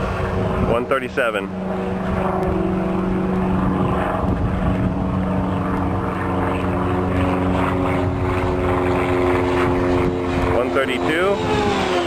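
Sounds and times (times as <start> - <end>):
model airplane propeller buzz: 0.0 - 12.0.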